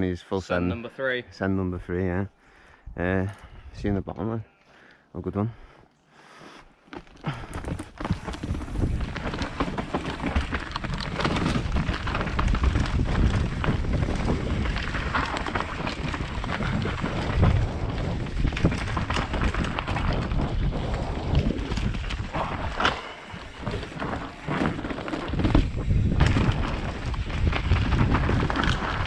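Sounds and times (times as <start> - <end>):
tyres on dirt: 6.8 - 29.0
bike rattling: 6.9 - 29.0
wind buffeting microphone: 8.1 - 29.0.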